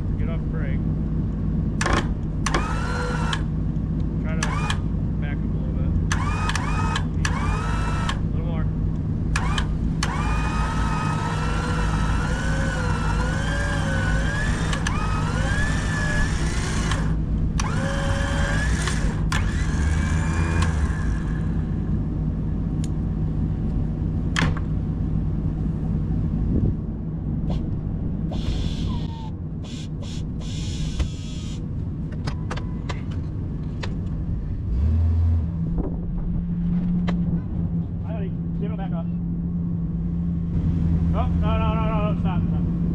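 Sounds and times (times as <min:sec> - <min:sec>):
truck engine idling: 0:00.0 - 0:34.7
electric winch whining: 0:01.8 - 0:03.6, 0:04.4 - 0:05.0, 0:06.0 - 0:08.4, 0:09.3 - 0:22.0, 0:28.4 - 0:31.6.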